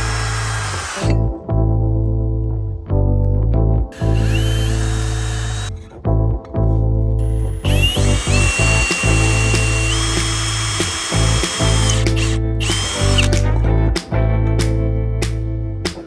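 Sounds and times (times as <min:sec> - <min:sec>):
electric power drill running: 0:00.0 - 0:01.2, 0:04.0 - 0:05.7, 0:07.2 - 0:13.4
background music: 0:00.0 - 0:16.0.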